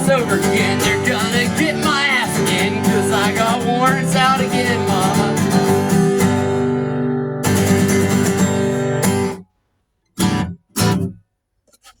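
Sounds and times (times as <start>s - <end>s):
acoustic guitar strumming chords: 0.0s - 9.4s, 10.2s - 11.2s.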